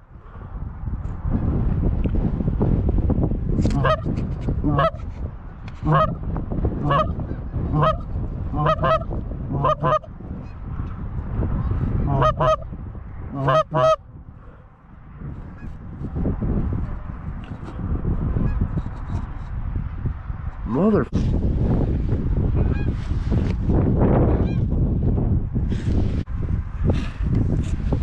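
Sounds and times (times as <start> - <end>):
goose honking: 3.8 - 4.0, 4.7 - 5.0, 5.8 - 6.2, 6.8 - 7.1, 7.7 - 10.1, 12.1 - 12.6, 13.3 - 14.0.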